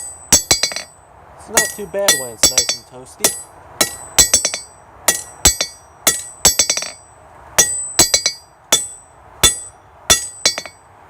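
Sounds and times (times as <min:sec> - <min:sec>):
hammer striking metal on anvil: 0:00.0 - 0:00.9, 0:01.5 - 0:07.0, 0:07.6 - 0:10.8.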